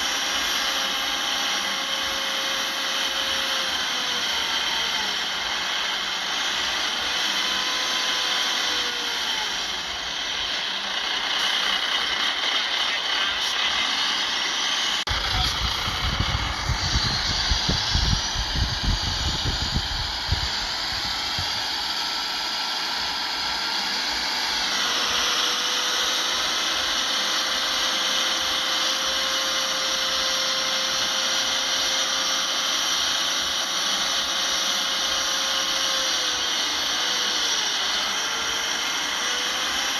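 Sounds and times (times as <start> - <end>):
bulldozer engine: 0.0 - 39.9
high-pitched mechanical whine: 0.0 - 39.9
heavy low rumble: 14.5 - 21.7.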